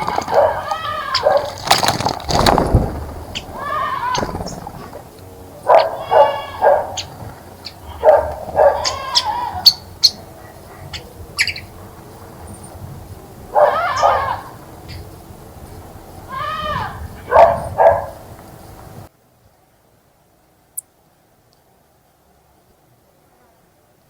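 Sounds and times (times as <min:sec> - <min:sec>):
loud drawn-out animal calls: 0:00.0 - 0:12.8, 0:13.4 - 0:18.4.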